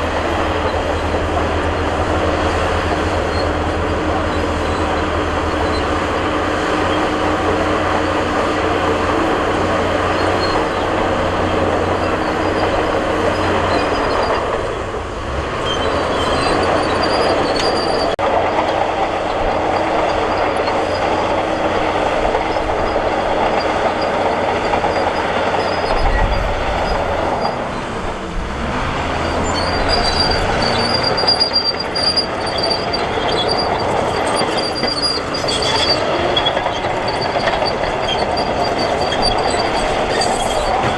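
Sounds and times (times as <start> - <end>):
diesel engine under load: 0.0 - 40.9
steel tracks clanking and squealing: 0.0 - 40.9
thin high squeal: 29.1 - 40.9.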